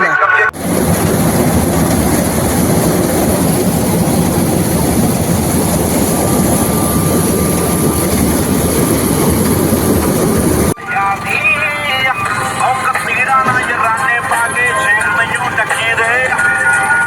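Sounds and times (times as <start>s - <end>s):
tractor diesel engine running: 0.0s - 17.0s
wind rumble on microphone: 0.6s - 10.8s.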